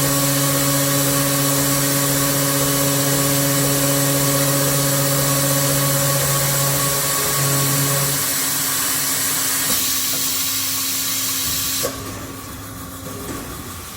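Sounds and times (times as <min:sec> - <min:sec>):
pipe-cutting saw motor hum: 0:00.0 - 0:10.2.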